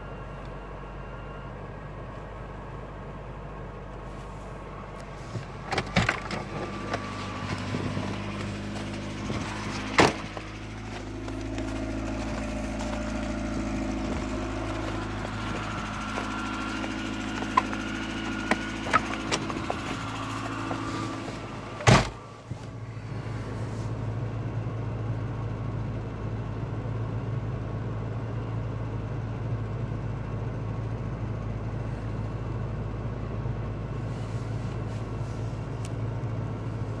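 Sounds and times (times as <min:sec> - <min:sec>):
car engine idling: 0:00.0 - 0:37.0
car door shutting: 0:04.9 - 0:22.8.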